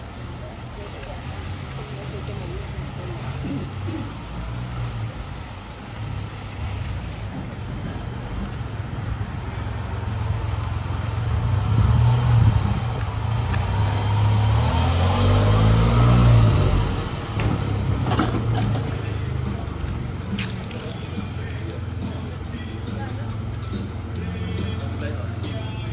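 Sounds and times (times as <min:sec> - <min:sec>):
vehicle engine rumbling past: 0:00.0 - 0:25.9.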